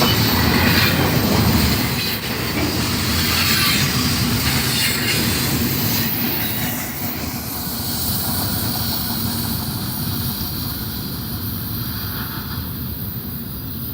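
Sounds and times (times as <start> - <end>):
wheel squeal on rails: 0.0 - 7.3
freight train cars rolling: 0.0 - 13.9.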